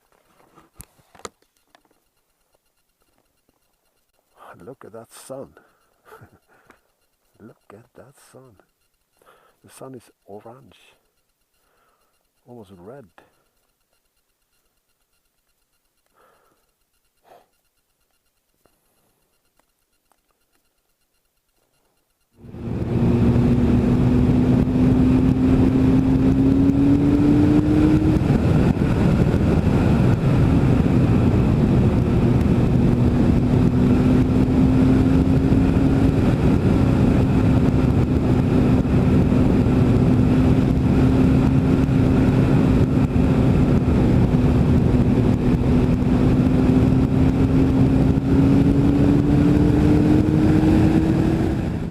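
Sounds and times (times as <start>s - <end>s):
motorcycle engine cruising: 21.8s - 51.9s
heavy wind noise: 22.4s - 51.9s.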